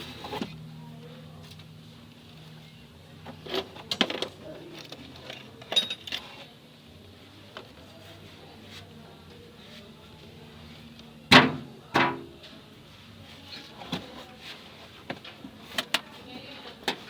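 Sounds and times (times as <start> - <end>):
metal tools clinking: 3.4 - 6.4.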